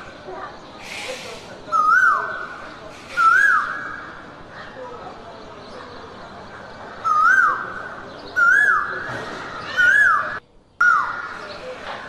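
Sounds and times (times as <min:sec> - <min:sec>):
forest background hiss: 0:00.0 - 0:04.5
bird whistled call: 0:01.7 - 0:02.4, 0:03.2 - 0:04.0, 0:08.4 - 0:09.0.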